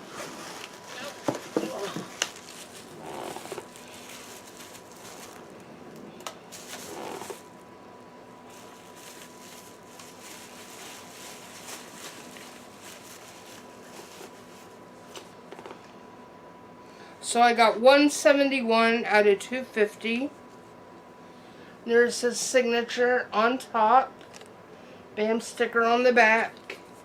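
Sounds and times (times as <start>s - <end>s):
rustling of handled items: 0.0s - 5.7s, 6.5s - 7.5s, 8.4s - 15.8s.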